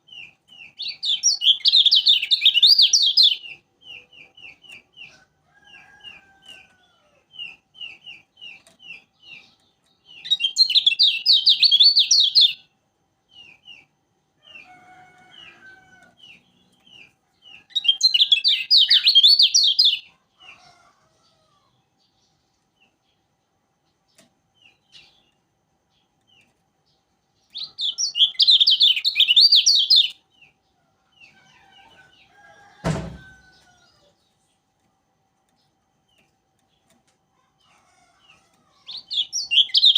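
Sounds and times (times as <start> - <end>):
sharp knock: 32.8 - 33.2.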